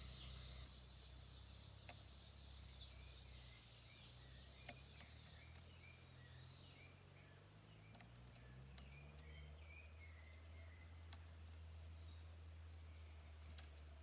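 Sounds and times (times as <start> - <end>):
birds chirping and whistling: 0.0 - 6.9
low steady hum: 0.0 - 7.8.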